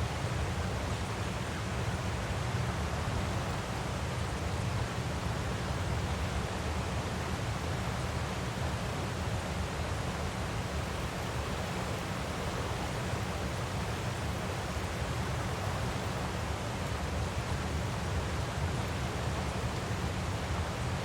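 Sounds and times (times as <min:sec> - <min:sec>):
waterfall rushing: 0:10.5 - 0:18.2.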